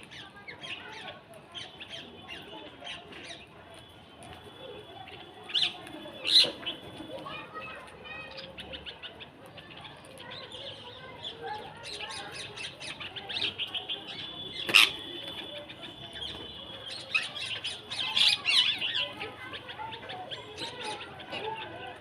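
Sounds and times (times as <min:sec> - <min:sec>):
small birds chirping: 0:05.0 - 0:22.0.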